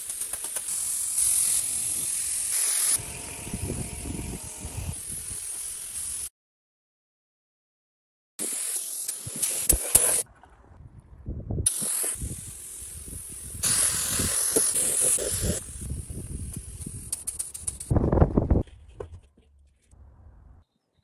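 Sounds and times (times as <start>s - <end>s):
hissing spray: 0.0s - 6.3s, 8.4s - 10.2s, 11.7s - 17.9s.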